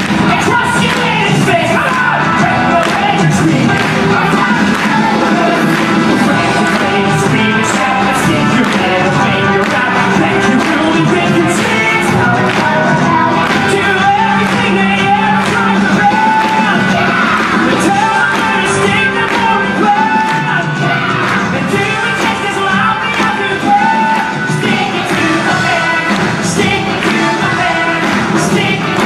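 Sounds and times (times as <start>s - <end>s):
rock band playing with singing: 0.0s - 29.0s.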